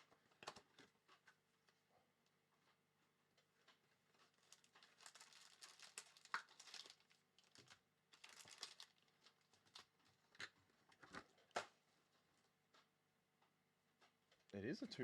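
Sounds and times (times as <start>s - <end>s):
plastic wrapping crinkling and tearing: 4.2s - 11.2s.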